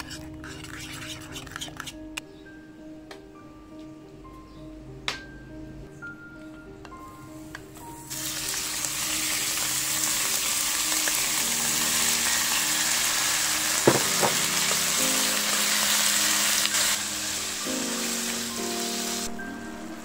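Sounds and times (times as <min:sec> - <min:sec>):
light music: 0:00.0 - 0:20.0
chicken sizzling in oil: 0:08.0 - 0:20.0
sharp knocks: 0:13.9 - 0:14.5.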